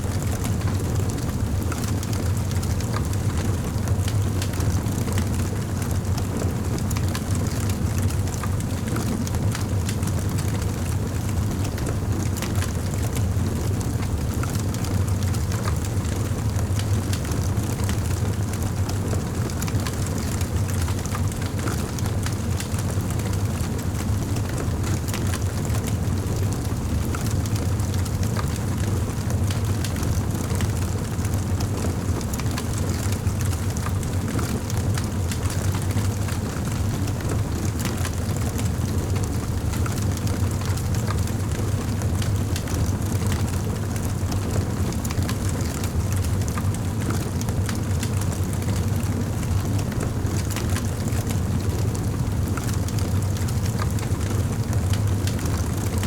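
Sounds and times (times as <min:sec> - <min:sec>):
fireplace fire crackling: 0:12.3 - 0:56.0.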